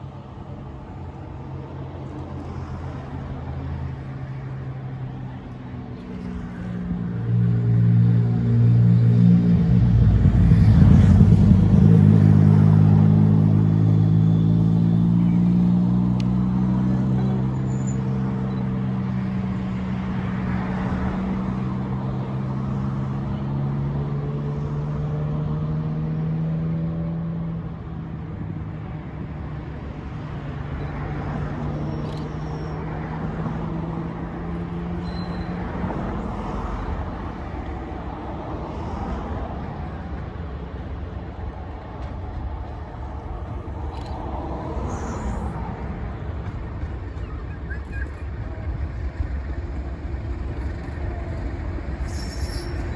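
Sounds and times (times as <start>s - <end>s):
large diesel engine running: 39.6s - 52.9s.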